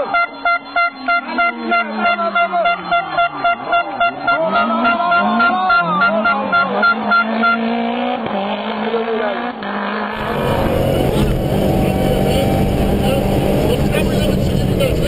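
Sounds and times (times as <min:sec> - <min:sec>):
horn tooting: 0:00.0 - 0:08.2, 0:10.2 - 0:15.0
car engine revving: 0:03.0 - 0:15.0.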